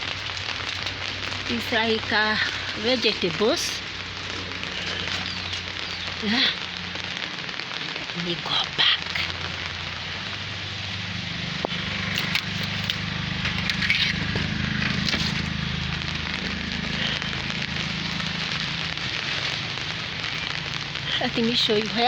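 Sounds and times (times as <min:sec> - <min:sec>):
low steady hum: 0:00.0 - 0:22.0
rain falling: 0:00.0 - 0:22.0.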